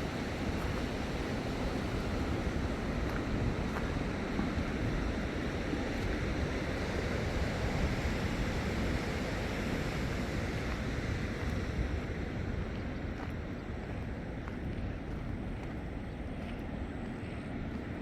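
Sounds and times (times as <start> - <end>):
rushing floodwater: 0.0 - 14.0
wind buffeting microphone: 0.0 - 18.0.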